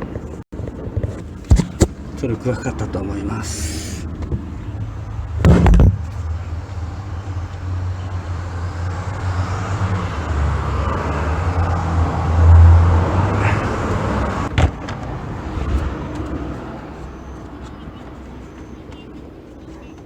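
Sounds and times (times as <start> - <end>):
car engine idling: 0.6 - 15.4
loud clunk: 5.4 - 6.2.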